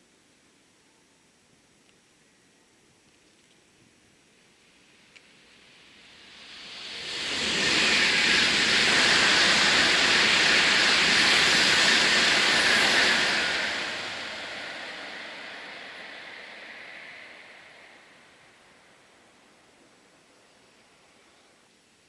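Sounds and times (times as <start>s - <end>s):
high-speed train passing: 5.4s - 20.2s.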